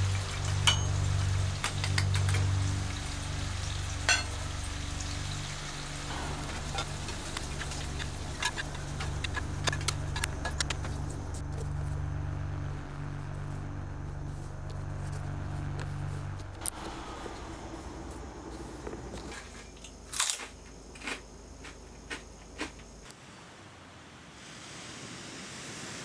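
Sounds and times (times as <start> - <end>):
food frying in hot oil: 0.0 - 10.8
steady low hum: 0.0 - 23.1.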